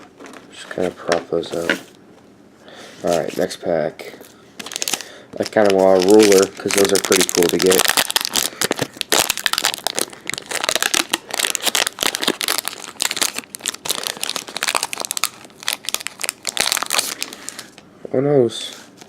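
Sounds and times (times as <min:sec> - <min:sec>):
foil wrapper crinkling and tearing: 0:04.6 - 0:17.8.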